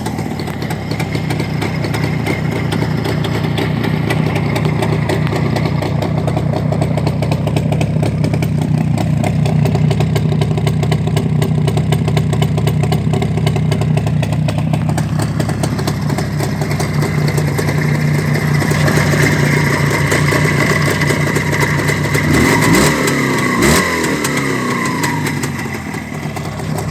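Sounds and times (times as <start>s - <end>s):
motorcycle two-stroke engine revving: 0.0s - 26.9s.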